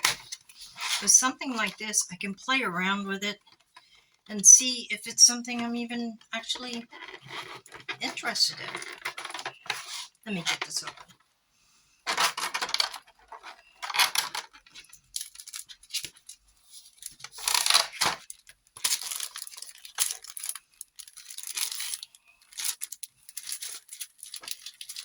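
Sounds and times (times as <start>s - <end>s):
packaging tearing and rustling: 12.1s - 25.0s.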